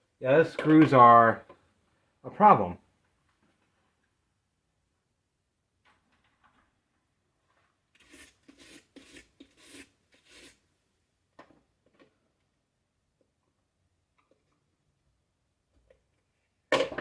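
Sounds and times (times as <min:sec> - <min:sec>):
screwdriver scraping a screw: 0:08.0 - 0:10.6.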